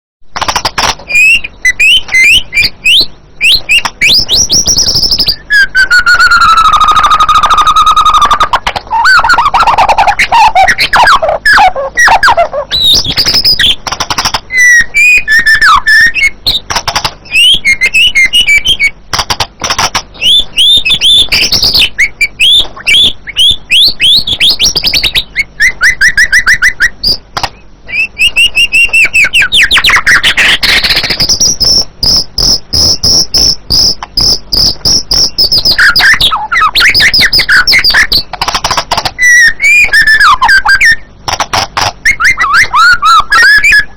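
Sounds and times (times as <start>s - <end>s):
songbird singing: 0.4s - 41.3s, 42.0s - 43.9s.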